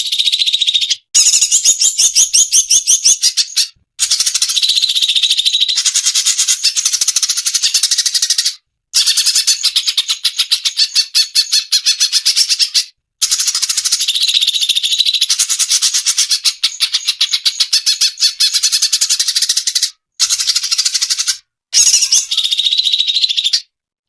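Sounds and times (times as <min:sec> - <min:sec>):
recorded bird chattering song: 0:00.0 - 0:23.8.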